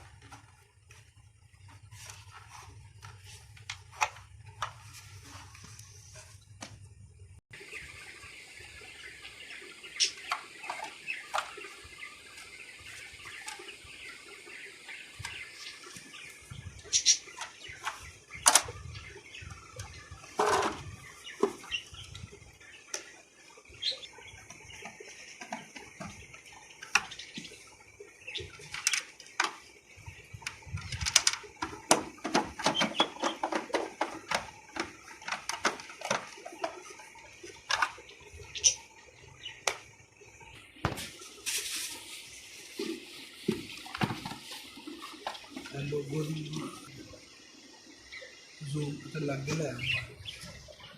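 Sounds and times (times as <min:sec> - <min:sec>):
irregular clicks and knocks: 0:28.5 - 0:29.8, 0:30.4 - 0:38.1
faint steady hiss: 0:37.4 - 0:50.5.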